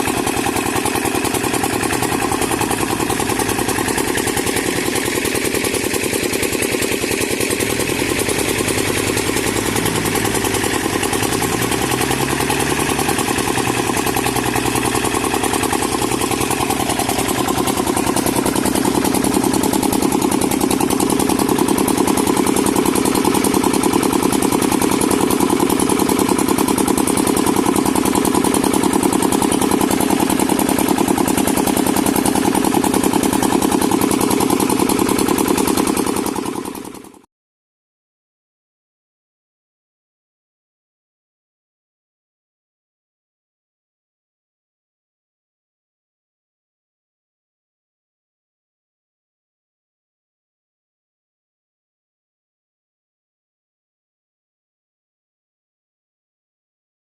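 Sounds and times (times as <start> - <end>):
tractor diesel engine running: 0.0 - 37.2.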